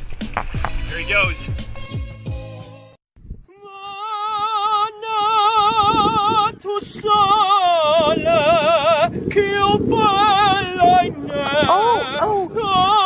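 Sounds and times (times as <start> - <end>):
person singing with heavy vibrato: 3.5 - 13.0.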